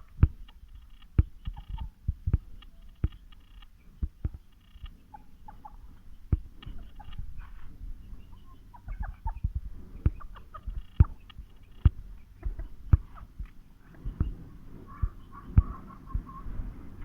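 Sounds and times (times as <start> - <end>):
chickens clucking: 0.0 - 17.0
sharp low thumps: 1.1 - 3.2, 6.2 - 8.0, 8.9 - 17.0.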